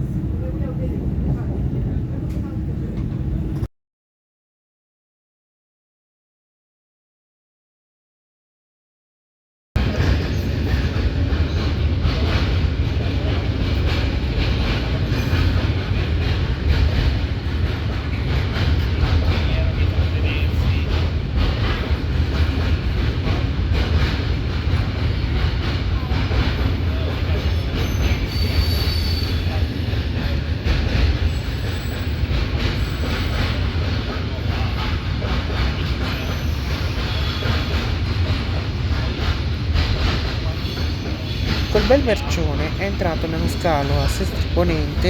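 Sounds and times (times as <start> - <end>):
train rumbling past: 0.0 - 3.7, 9.8 - 45.0
high wheel squeals: 27.5 - 29.6.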